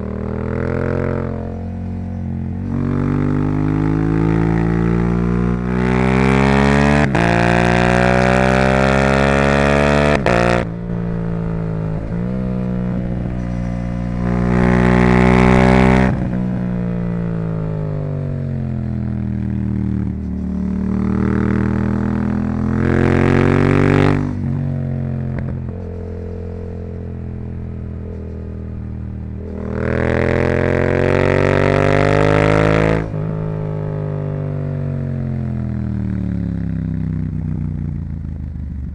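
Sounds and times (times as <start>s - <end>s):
engine decelerating on overrun: 0.0s - 38.8s
motorcycle engine accelerating: 0.0s - 38.9s.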